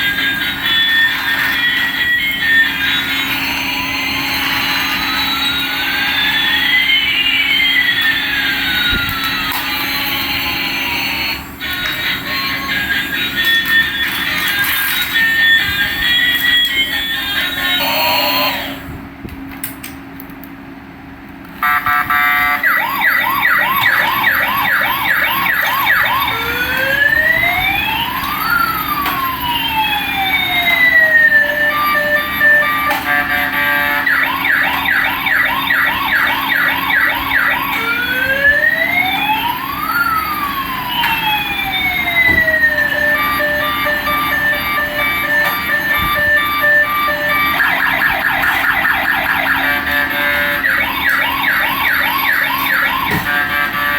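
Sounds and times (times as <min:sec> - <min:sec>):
toy police siren: 0:00.0 - 0:18.8, 0:21.6 - 0:53.9.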